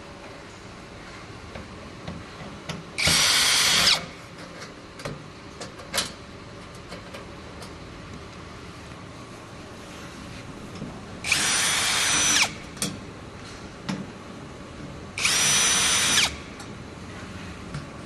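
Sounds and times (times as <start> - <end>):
power drill burst: 3.0 - 4.0, 11.3 - 12.6, 15.2 - 16.4
parts clicking and knocking: 12.1 - 13.0.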